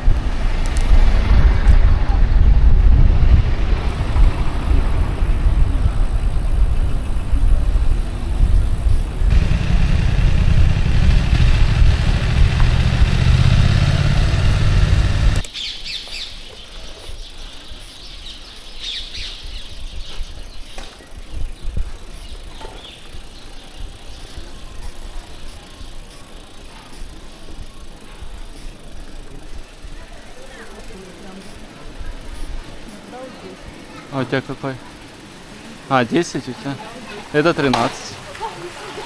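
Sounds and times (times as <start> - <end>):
wind buffeting microphone: 0.0 - 15.4, 19.0 - 32.9
small birds chirping: 15.3 - 37.4.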